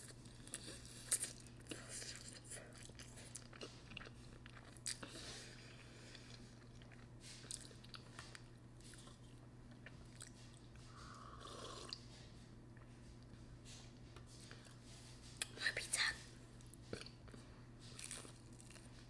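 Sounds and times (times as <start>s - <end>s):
chewing noodles: 0.0s - 12.1s, 16.6s - 19.0s.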